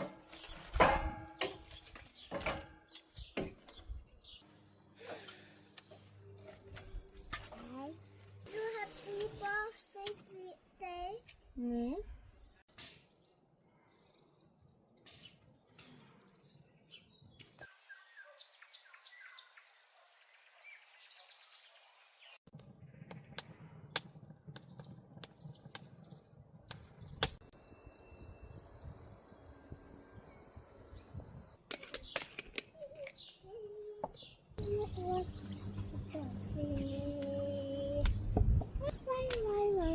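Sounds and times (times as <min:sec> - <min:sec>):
birds chirping and singing: 0:13.1 - 0:22.4, 0:30.4 - 0:39.9.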